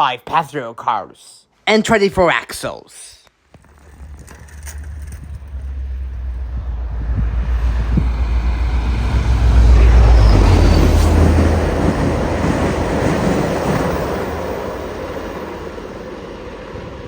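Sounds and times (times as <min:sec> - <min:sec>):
passenger train passing: 0:04.4 - 0:17.0.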